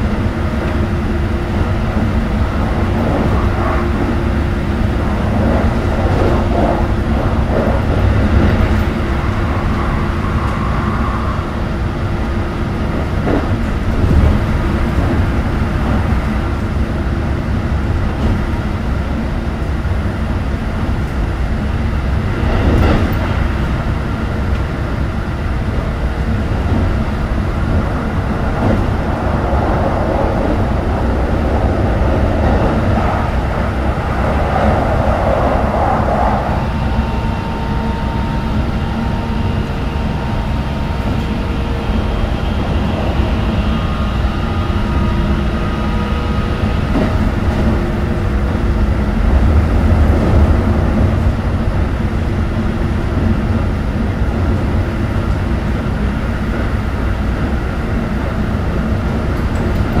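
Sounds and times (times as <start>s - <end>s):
track knocks: 0.0s - 16.8s
train wheels rumbling on rail: 0.0s - 60.0s.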